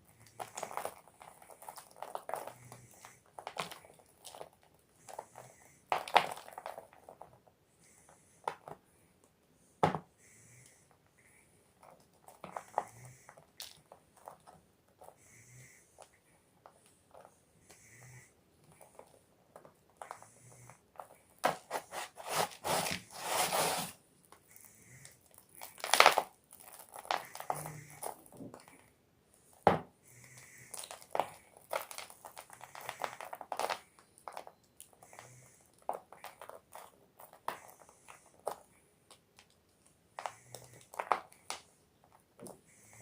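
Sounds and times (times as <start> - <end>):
chalk block crunching: 21.4 - 24.0.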